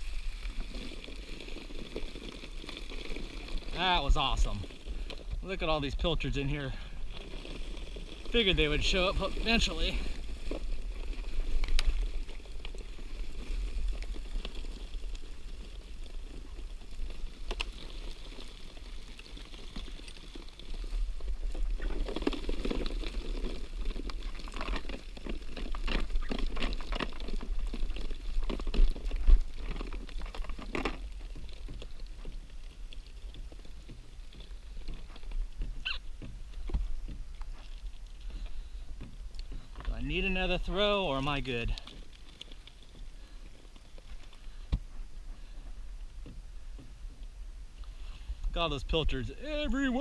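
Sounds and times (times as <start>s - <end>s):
water pattering and splashing: 0.0s - 44.7s.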